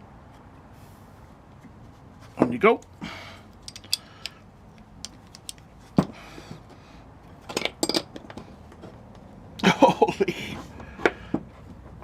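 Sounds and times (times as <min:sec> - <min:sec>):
spanners clinking on metal: 0:03.6 - 0:04.3.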